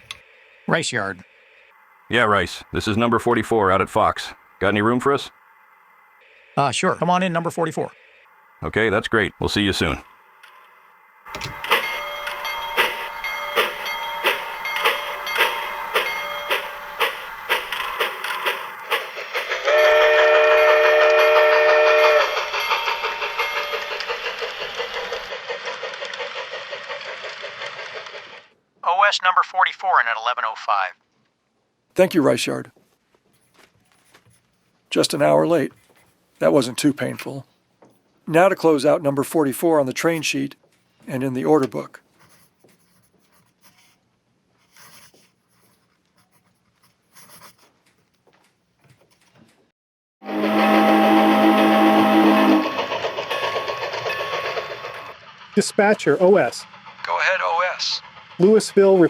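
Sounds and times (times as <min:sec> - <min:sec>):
train clattering on tracks: 0:11.3 - 0:28.5, 0:50.4 - 0:59.0
train whistle: 0:19.6 - 0:23.3, 0:50.2 - 0:53.7
pen scratching on paper: 0:42.2 - 0:44.0, 0:44.6 - 0:47.8.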